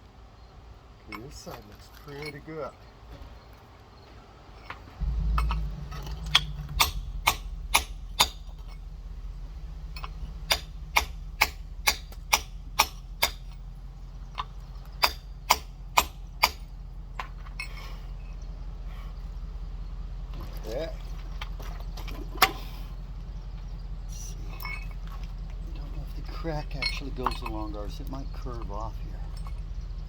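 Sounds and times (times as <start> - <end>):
steady low rumble: 5.0 - 30.0
rock hammer tapping geode: 5.4 - 8.7, 10.0 - 13.6, 14.3 - 16.6.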